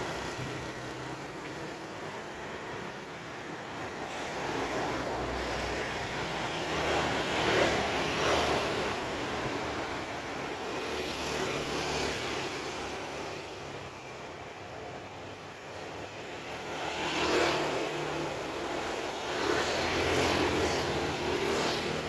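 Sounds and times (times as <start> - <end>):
engine passing by: 16.7 - 22.0.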